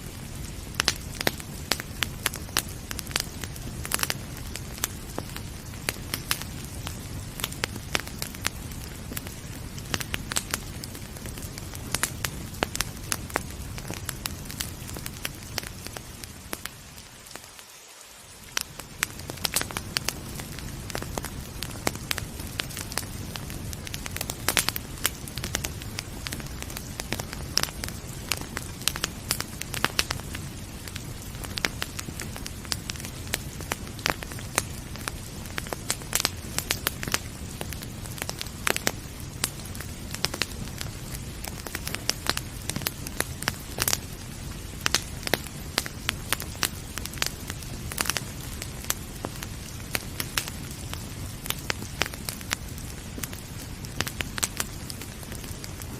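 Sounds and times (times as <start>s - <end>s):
rain hissing: 0.0s - 55.9s
wood fire crackling and popping: 0.0s - 55.9s.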